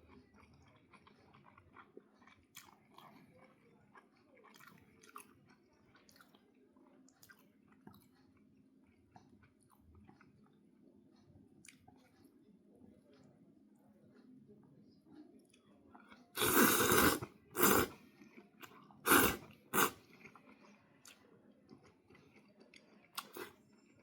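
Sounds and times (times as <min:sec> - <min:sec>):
person chewing: 0:00.1 - 0:06.4, 0:16.1 - 0:21.2, 0:21.8 - 0:23.7.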